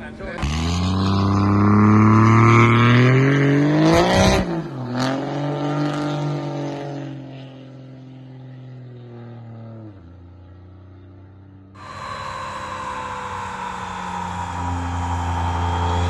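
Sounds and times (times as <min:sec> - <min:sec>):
truck engine accelerating: 0:11.8 - 0:16.0.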